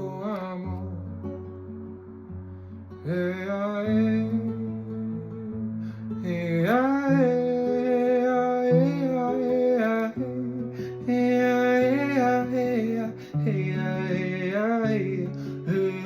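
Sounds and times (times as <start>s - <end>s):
person singing wordless melody: 0.0s - 1.3s, 3.0s - 16.0s
acoustic guitar chords: 0.0s - 16.0s
devotional chant: 6.2s - 16.0s.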